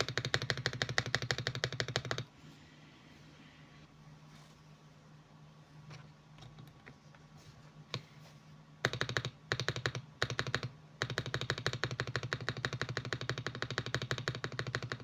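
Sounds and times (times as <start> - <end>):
typing on mechanical keyboard: 0.0 - 2.3, 8.8 - 15.0.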